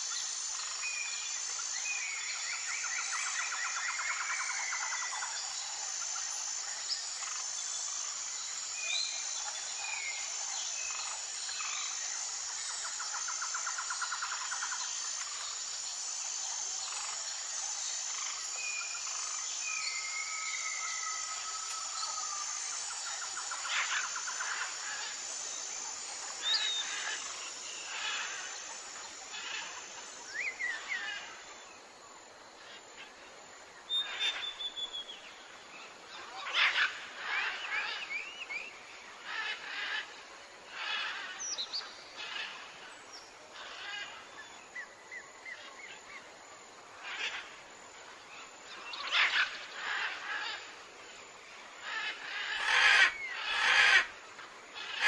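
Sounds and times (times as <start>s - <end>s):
steady high hiss: 0.0s - 55.0s
birds chirping and trilling: 16.8s - 31.4s, 33.9s - 46.2s, 48.3s - 50.8s, 51.5s - 54.2s, 54.8s - 55.0s.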